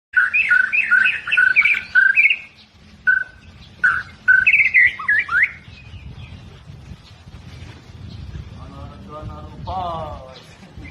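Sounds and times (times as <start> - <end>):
bird singing whistles: 0.2 - 6.4.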